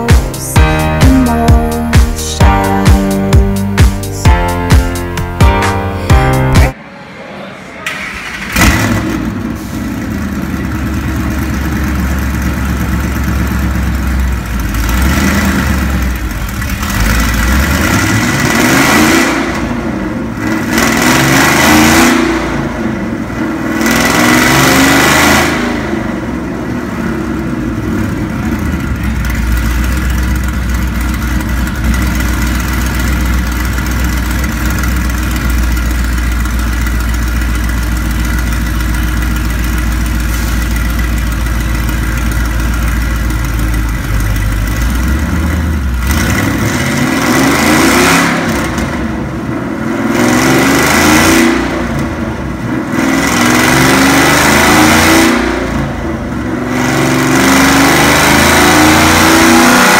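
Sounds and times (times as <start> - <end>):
engine revving on a dyno: 8.4 - 29.0, 38.0 - 59.9.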